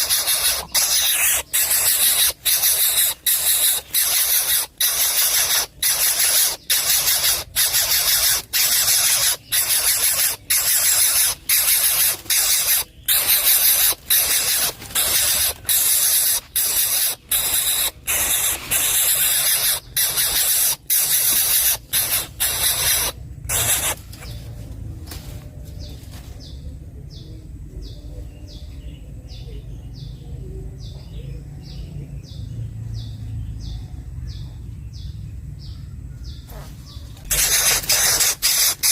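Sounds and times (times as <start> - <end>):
bird nestling hissing: 0.0 - 24.1, 37.3 - 38.9.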